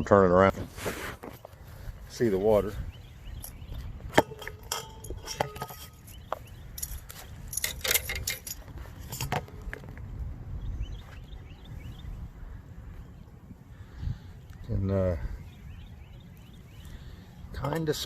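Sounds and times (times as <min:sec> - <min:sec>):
wind rumble: 0:01.5 - 0:18.0
phone handling clicks and rattles: 0:04.2 - 0:09.9.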